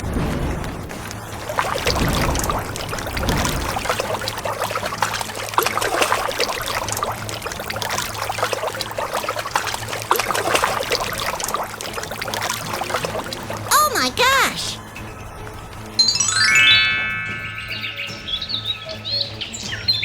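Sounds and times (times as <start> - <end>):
water trickling and splashing: 0.0 - 13.7.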